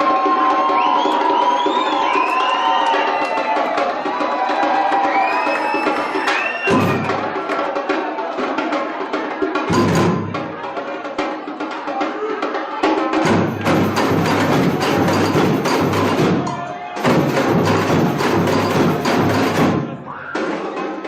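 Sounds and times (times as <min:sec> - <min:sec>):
samba percussion ensemble playing: 0:00.0 - 0:21.0
bass drums: 0:13.2 - 0:20.1.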